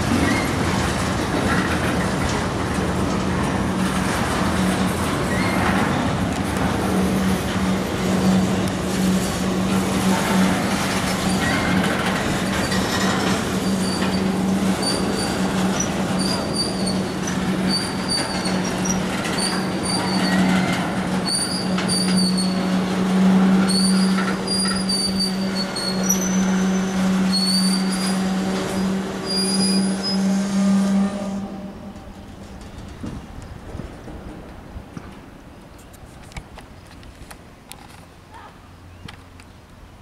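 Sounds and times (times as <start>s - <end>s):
train wheels rumbling on rails: 0.0s - 40.0s
high wheel squeals: 4.6s - 6.2s, 6.9s - 32.8s.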